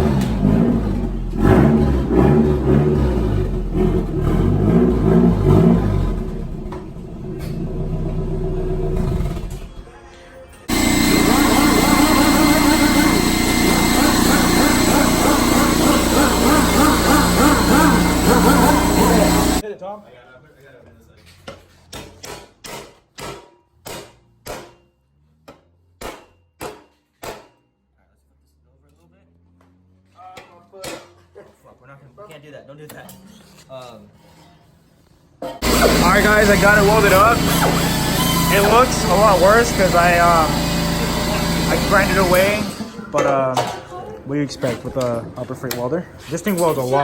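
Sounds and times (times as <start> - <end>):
car engine revving: 0.0 - 9.9, 10.7 - 19.6, 35.6 - 43.1
hammer striking metal: 21.5 - 27.7.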